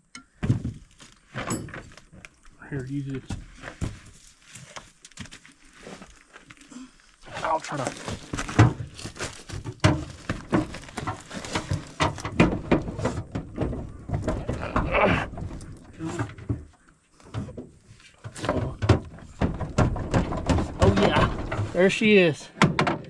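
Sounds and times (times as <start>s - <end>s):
metal knocks and clanks: 0.2s - 2.0s, 8.4s - 23.0s
men grunting: 14.5s - 15.4s.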